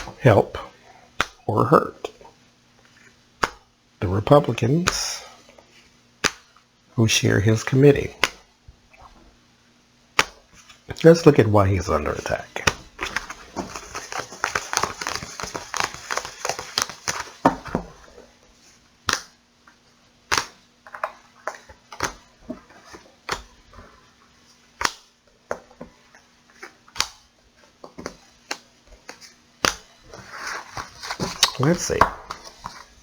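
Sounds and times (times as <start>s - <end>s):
cards being shuffled: 10.2s - 18.3s, 20.3s - 24.0s, 24.7s - 33.0s
sharp card snaps: 20.3s - 20.6s, 24.8s - 25.1s.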